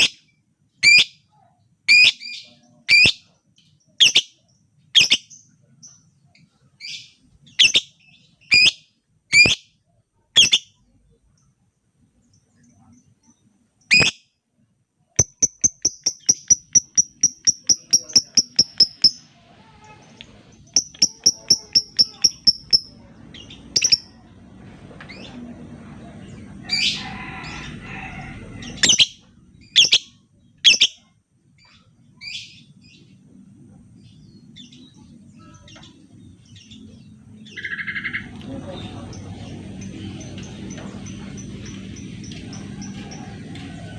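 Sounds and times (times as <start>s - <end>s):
lovebird chirping: 1.9s - 9.7s, 10.4s - 11.5s, 12.2s - 14.3s, 15.2s - 24.2s, 28.8s - 33.0s
shrill bird calls: 7.6s - 9.6s, 20.7s - 22.9s, 28.8s - 31.0s.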